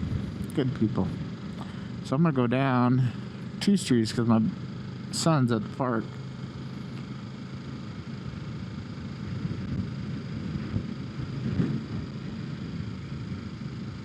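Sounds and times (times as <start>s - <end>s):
wind rumble on microphone: 0.0s - 1.4s, 9.0s - 14.0s
motorcycle engine humming: 0.0s - 14.0s.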